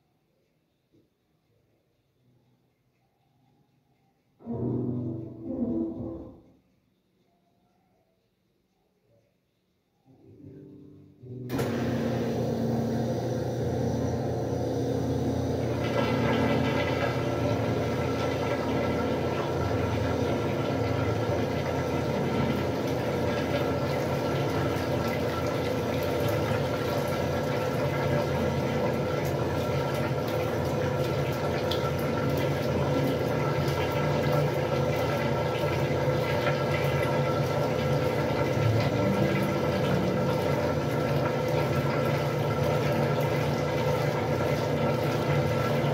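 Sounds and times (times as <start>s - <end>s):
washing machine motor hum: 2.2s - 45.9s
water rushing: 15.9s - 45.9s.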